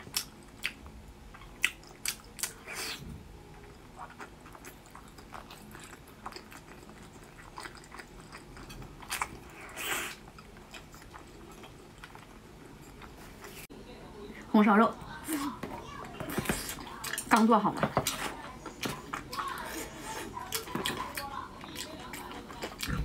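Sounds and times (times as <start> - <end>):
chewing clicks: 20.5 - 23.0.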